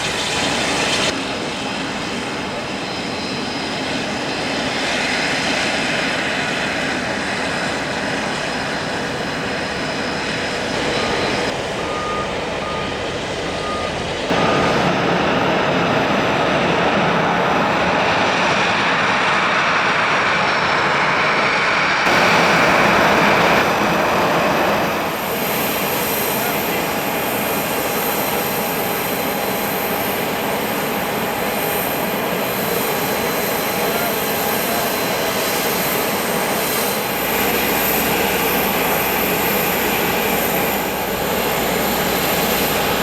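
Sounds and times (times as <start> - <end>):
jet engines roaring: 0.0 - 43.0
vehicle reversing beeper: 10.8 - 15.0.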